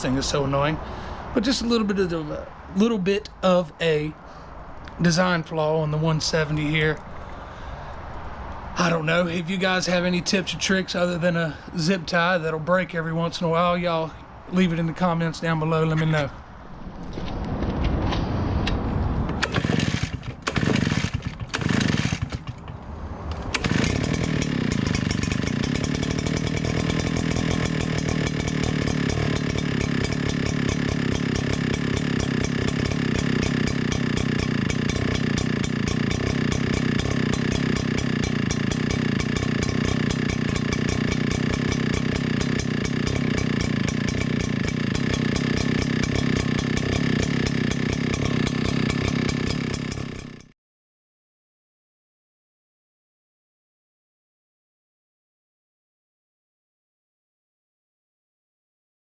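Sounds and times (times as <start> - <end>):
recoil starter rope tugs: 19.3 - 50.5
small petrol engine running: 19.4 - 50.5.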